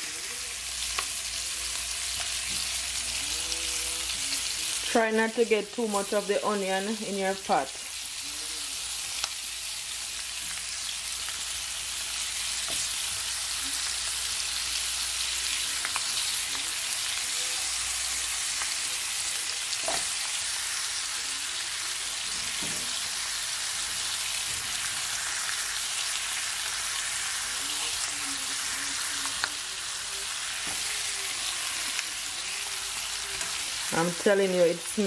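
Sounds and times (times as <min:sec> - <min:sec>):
chicken wings frying in oil: 0:00.0 - 0:35.0.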